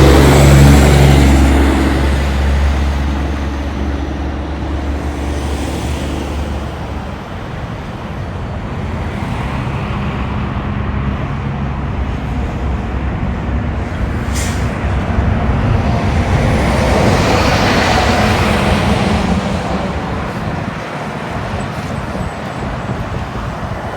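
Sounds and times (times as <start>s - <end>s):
trucks passing with engine drone: 0.0s - 23.9s
sharp air hiss: 14.2s - 14.8s.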